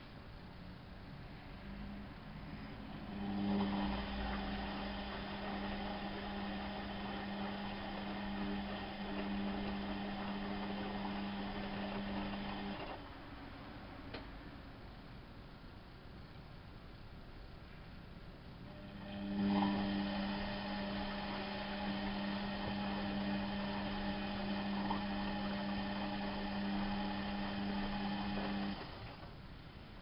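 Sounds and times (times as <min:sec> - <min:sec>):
washing machine motor humming: 0:02.6 - 0:13.4, 0:18.6 - 0:29.4.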